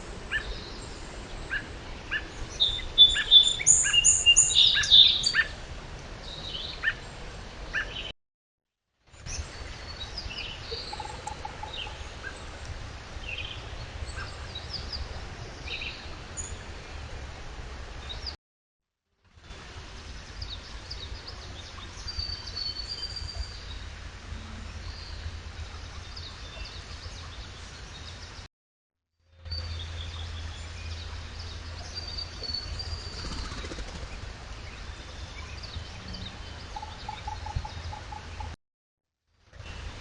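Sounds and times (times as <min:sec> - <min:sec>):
birds chirping and whistling: 0:01.5 - 0:05.5.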